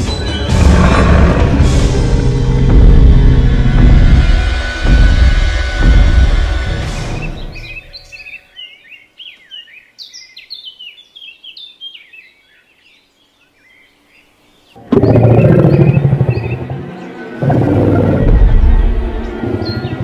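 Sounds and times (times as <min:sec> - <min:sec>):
deep growling dinosaur roar: 0:00.5 - 0:04.4, 0:14.8 - 0:20.0
small birds chirping: 0:07.0 - 0:20.0.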